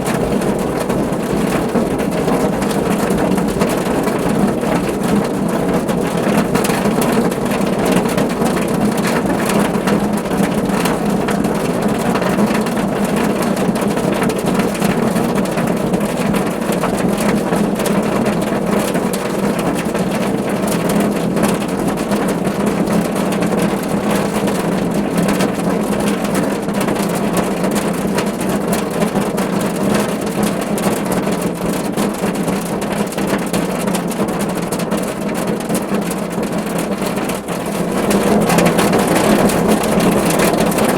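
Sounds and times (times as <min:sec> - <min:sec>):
heavy rain drumming on car roof: 0:00.0 - 0:40.9.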